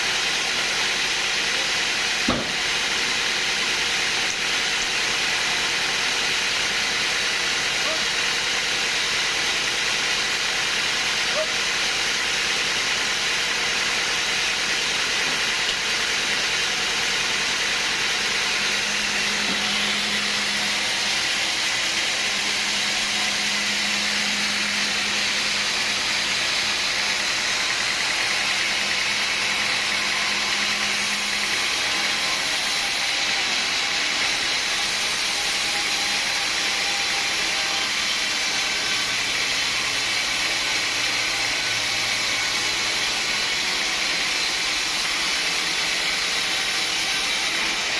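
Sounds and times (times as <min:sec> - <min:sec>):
sawmill machinery hissing: 0:00.0 - 0:47.9.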